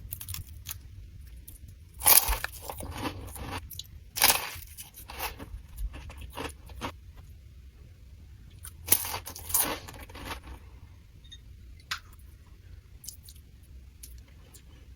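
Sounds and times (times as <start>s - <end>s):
crunchy snack chewing: 2.0s - 7.0s, 8.6s - 10.7s.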